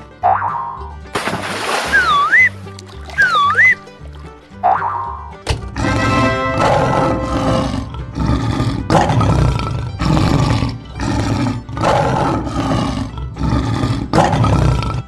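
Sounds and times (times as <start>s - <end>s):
lion roaring: 5.8s - 15.0s.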